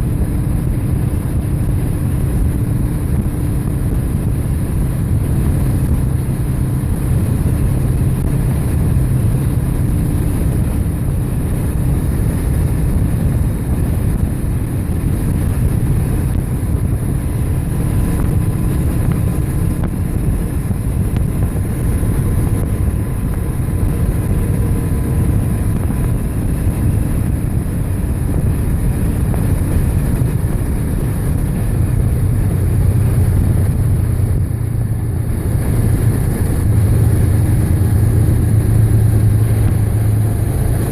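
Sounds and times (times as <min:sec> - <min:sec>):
bike road noise: 0:00.0 - 0:40.9
wind on microphone: 0:00.0 - 0:40.9.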